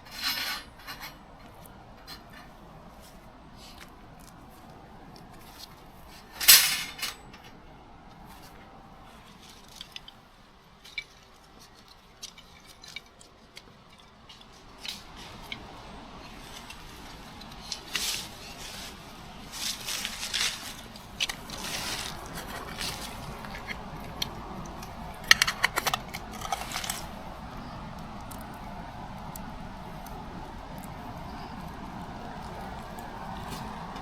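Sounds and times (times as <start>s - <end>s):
scraping rustle: 0.0s - 7.5s, 10.8s - 34.0s
gear clicks and knocks: 20.0s - 34.0s.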